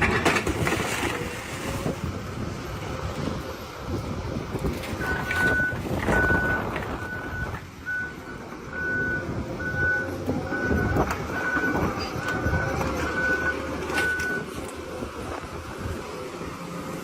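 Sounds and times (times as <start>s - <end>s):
heavy machine noise: 0.0s - 17.0s
reversing alarm beeping: 5.0s - 14.5s.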